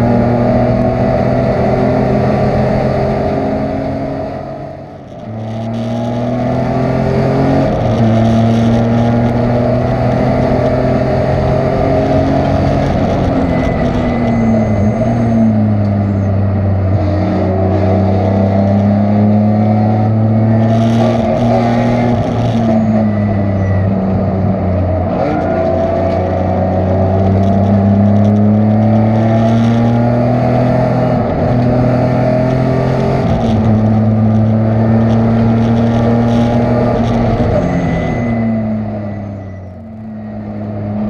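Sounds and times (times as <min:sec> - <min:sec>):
race car engine revving: 0:00.0 - 0:41.0.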